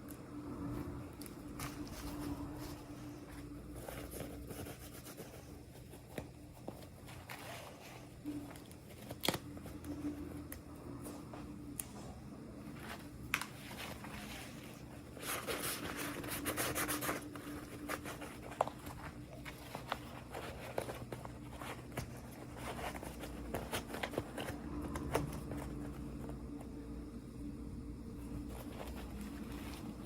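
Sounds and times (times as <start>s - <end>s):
packaging rustling: 12.8s - 26.4s.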